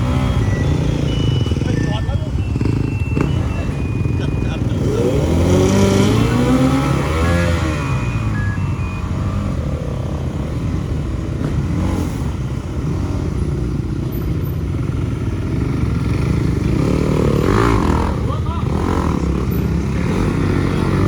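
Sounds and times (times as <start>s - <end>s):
motorcycle engines running: 0.0s - 21.0s.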